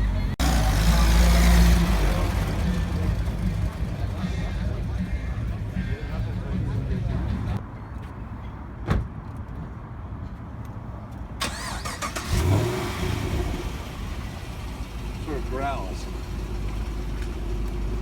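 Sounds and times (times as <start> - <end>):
car engine rumbling and revving: 0.0 - 7.6, 11.4 - 18.0.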